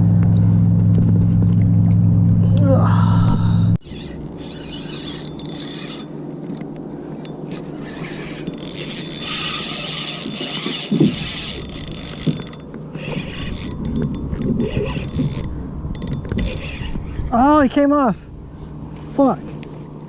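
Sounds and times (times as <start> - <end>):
fishing reel cranking: 3.8 - 6.1, 7.8 - 17.0.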